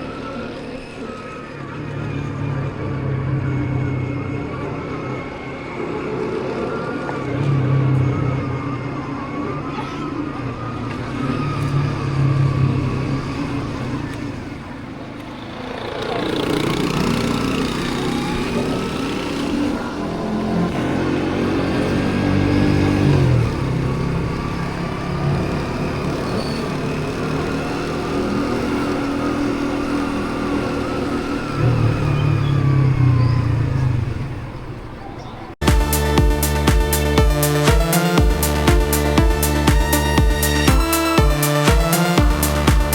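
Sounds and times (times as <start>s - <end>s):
road noise: 0.0s - 42.9s
motorbike engine running: 10.6s - 34.8s, 35.6s - 42.9s.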